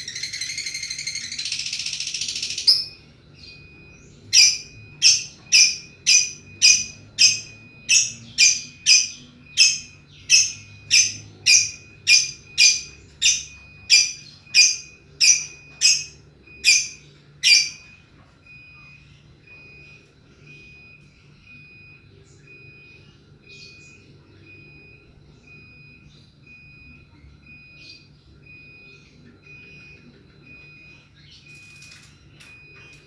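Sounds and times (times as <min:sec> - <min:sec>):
faint electronic beep: 0:00.0 - 0:33.0
lovebird squawks: 0:04.3 - 0:17.9.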